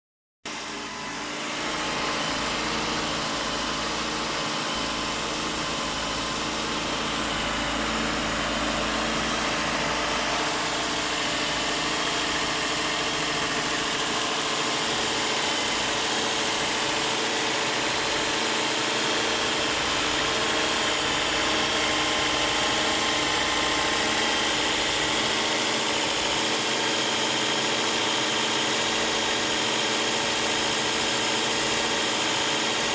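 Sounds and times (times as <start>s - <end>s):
car engine idling: 0.5s - 32.9s.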